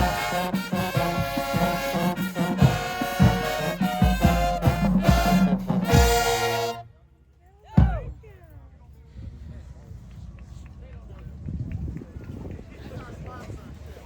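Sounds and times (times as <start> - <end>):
marching band playing: 0.0 - 6.9.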